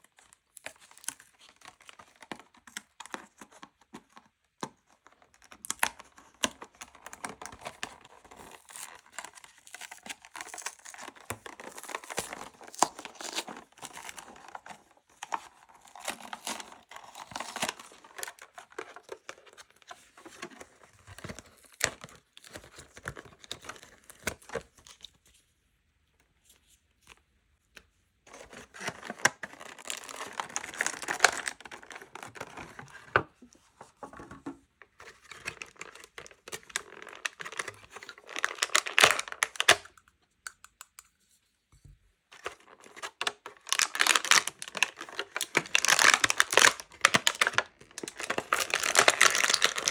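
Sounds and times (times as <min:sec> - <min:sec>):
plastic packaging crinkling: 0:28.3 - 0:33.0, 0:35.3 - 0:39.9, 0:42.4 - 0:49.9
small sharp clicks and taps: 0:39.8 - 0:41.2.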